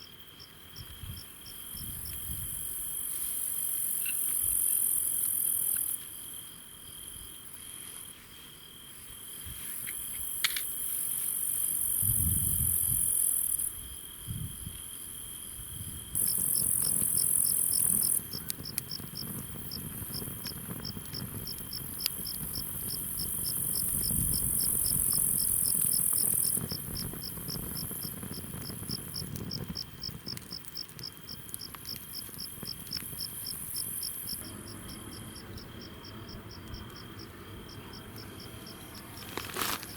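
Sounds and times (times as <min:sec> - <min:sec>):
insects chirring: 0:00.0 - 0:39.9
repeating insect chirp: 0:15.8 - 0:39.9.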